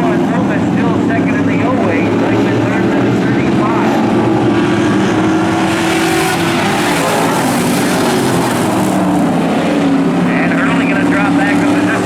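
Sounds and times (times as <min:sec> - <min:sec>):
race car engines running hard: 0:00.0 - 0:12.0.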